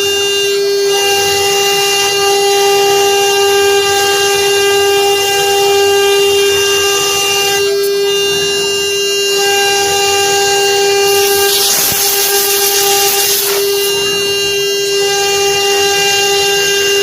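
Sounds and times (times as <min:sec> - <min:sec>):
router spindle whining: 0:02.6 - 0:16.0
engraving wood hiss: 0:11.1 - 0:14.1.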